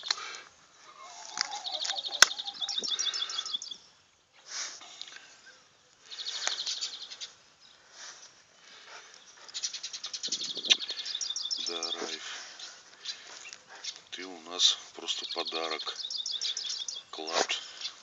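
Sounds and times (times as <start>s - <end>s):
small birds trilling: 0.0s - 4.1s, 5.0s - 18.0s
dog snuffling and digging in soil: 11.1s - 15.1s.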